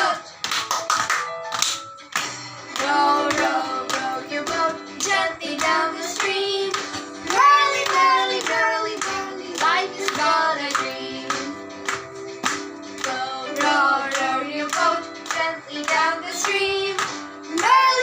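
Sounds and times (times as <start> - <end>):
instrumental backing with beat: 0.0 - 18.0
child-like singing voice: 13.1 - 18.0.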